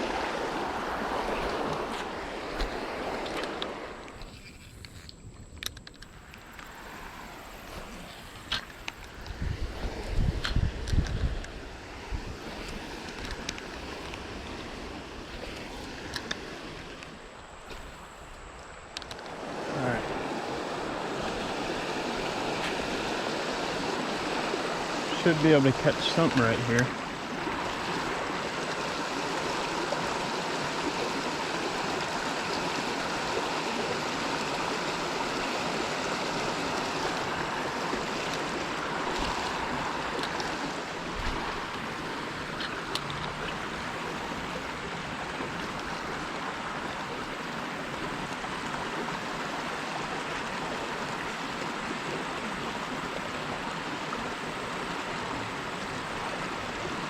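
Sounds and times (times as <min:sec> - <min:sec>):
creek water running over rocks: 0:00.0 - 0:57.0
faint clicks: 0:01.4 - 0:06.8, 0:12.6 - 0:14.2, 0:15.5 - 0:19.4, 0:42.5 - 0:43.7.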